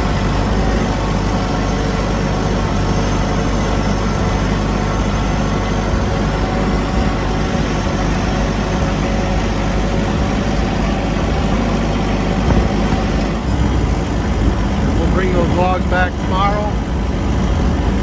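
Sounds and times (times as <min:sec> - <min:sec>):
vehicle engine droning: 0:00.0 - 0:18.0.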